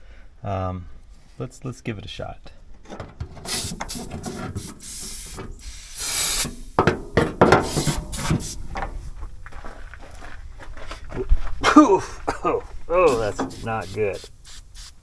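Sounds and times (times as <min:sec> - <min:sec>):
can scraping and clattering: 0:02.8 - 0:09.0, 0:13.1 - 0:14.5
aerosol spray hissing: 0:03.5 - 0:06.8, 0:07.5 - 0:08.7, 0:12.9 - 0:15.0.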